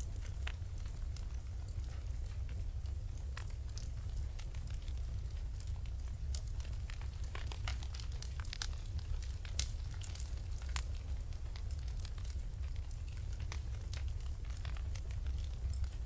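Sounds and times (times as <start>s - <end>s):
fire crackles and pops: 0.0s - 16.0s
fire flames rumbling: 0.0s - 16.0s.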